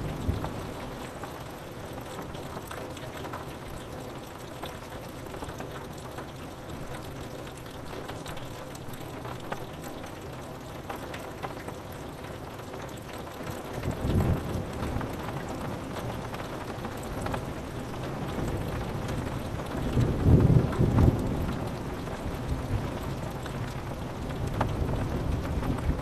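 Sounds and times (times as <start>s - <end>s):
rain on window glass: 0.0s - 26.0s.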